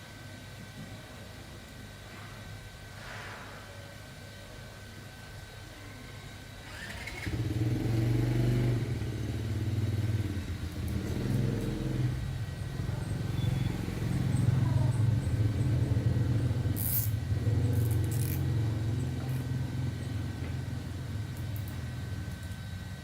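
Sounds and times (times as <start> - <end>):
small engine running: 6.6 - 23.0.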